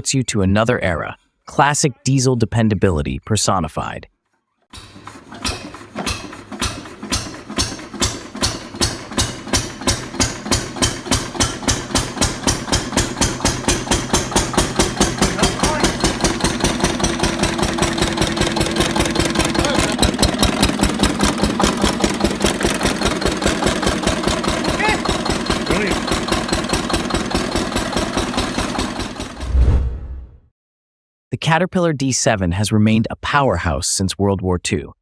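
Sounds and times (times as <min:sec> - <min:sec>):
diesel generator engine pulsing: 0:04.8 - 0:29.4.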